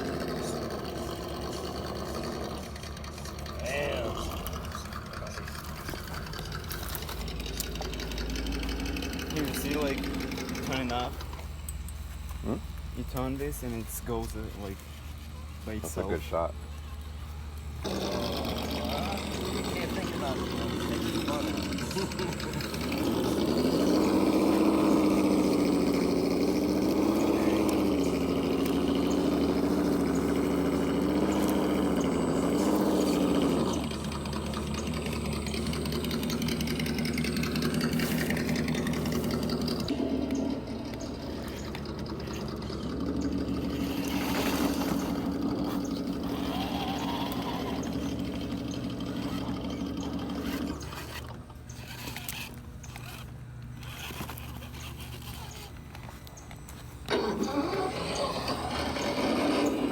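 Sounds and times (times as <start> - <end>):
simulated engine note from speaker: 0.0 - 16.5, 17.8 - 51.3.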